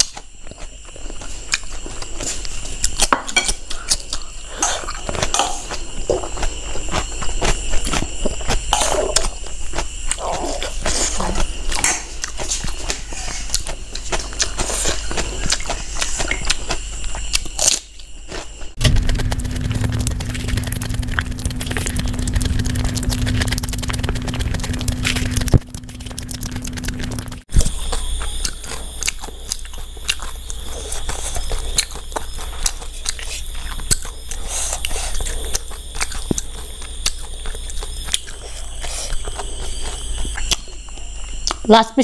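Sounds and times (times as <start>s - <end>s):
wet chewing: 3.7s - 41.6s
low hum: 18.8s - 28.5s
lip smacks and mouth clicks: 19.0s - 27.4s.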